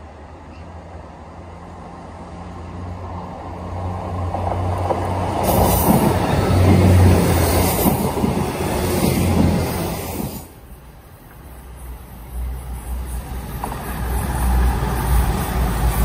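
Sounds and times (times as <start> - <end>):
train wheels rumbling on rails: 0.9 - 16.0.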